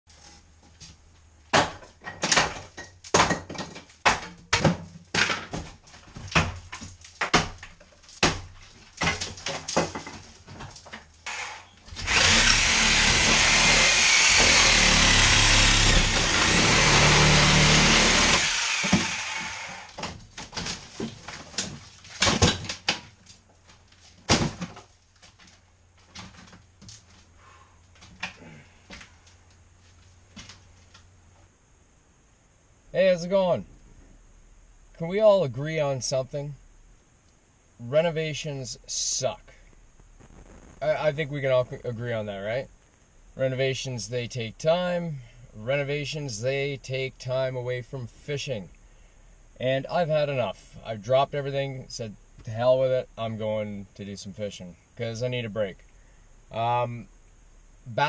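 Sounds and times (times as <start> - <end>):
sharp irregular knocks: 1.5 - 10.7
power tool running: 11.2 - 20.0.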